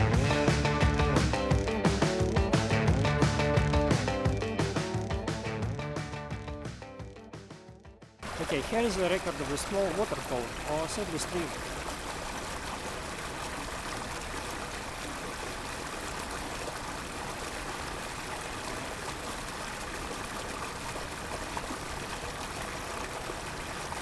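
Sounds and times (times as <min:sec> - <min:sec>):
stream over small waterfall: 0:08.2 - 0:24.0.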